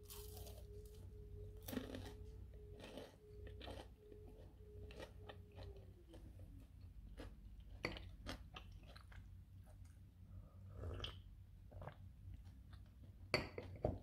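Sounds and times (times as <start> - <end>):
crunching fried fritters: 0.0 - 9.9
faint steady hum: 0.0 - 14.0.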